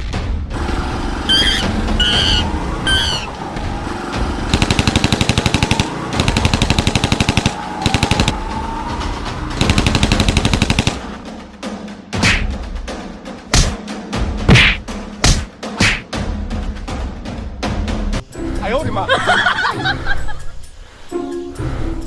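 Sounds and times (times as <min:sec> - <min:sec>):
rapid rattling pulses: 0:00.5 - 0:11.6
high squeaky calls: 0:01.3 - 0:03.5.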